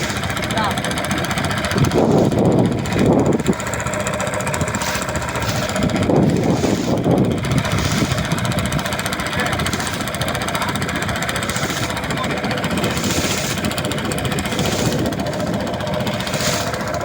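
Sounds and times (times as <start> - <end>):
engine running with rapid knocking: 0.0 - 17.0.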